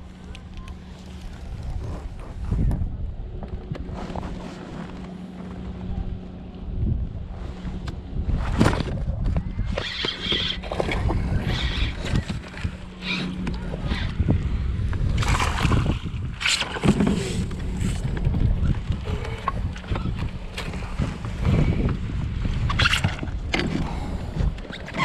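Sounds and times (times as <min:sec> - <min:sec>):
low rumble: 0:00.0 - 0:09.8, 0:10.5 - 0:24.8
wind buffeting microphone: 0:00.8 - 0:25.0
water splashing: 0:15.1 - 0:18.0.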